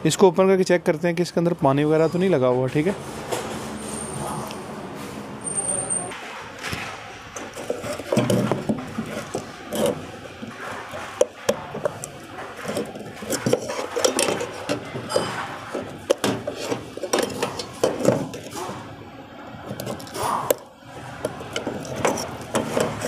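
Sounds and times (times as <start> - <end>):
plastic casing clicks and scraping: 7.4 - 18.8, 19.6 - 23.0.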